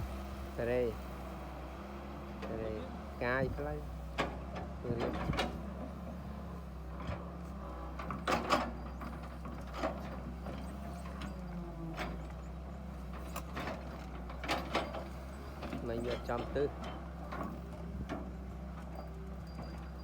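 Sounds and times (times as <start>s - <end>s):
excavator diesel engine running: 0.0s - 20.0s
metallic clanks and creaks: 4.1s - 6.2s, 7.8s - 12.5s, 13.1s - 20.0s.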